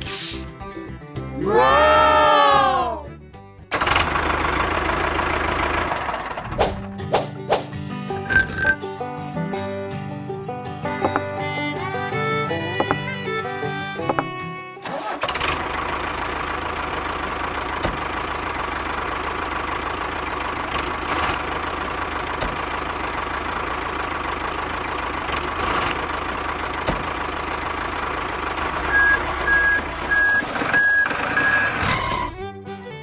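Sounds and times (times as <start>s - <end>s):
truck engine running: 3.7s - 6.6s, 14.9s - 31.8s
reversing alarm beeping: 28.9s - 31.8s.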